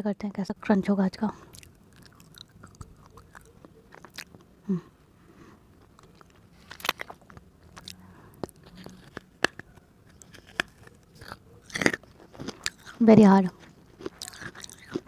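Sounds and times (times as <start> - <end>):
teeth biting hard clay: 1.5 - 4.4, 5.9 - 13.0, 13.9 - 15.0.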